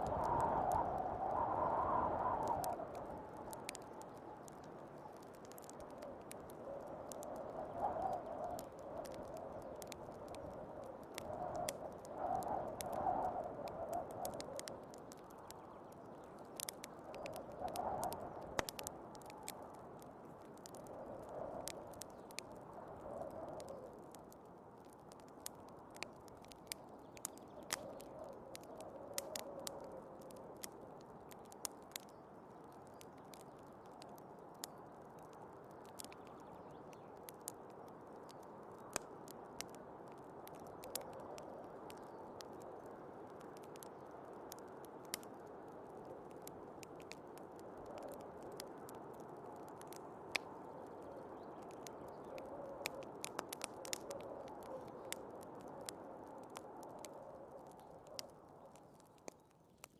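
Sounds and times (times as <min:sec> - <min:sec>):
muffled snowstorm wind: 0:00.0 - 0:24.2
wood fire crackling and popping: 0:00.0 - 0:59.9.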